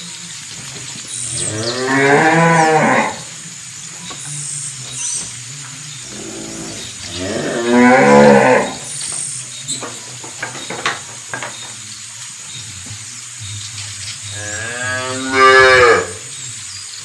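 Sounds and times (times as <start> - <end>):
cow mooing: 1.4 - 3.3, 6.0 - 8.9, 14.3 - 16.3.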